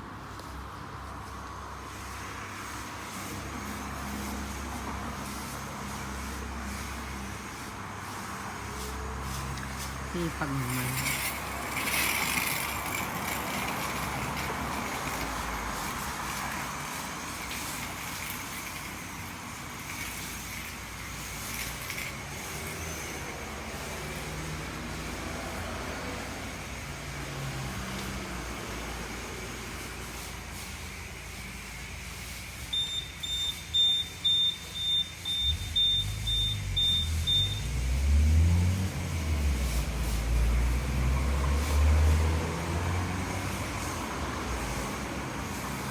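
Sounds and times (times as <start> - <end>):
pressure washer spraying: 1.8 - 45.9
short high beeps: 32.8 - 37.7.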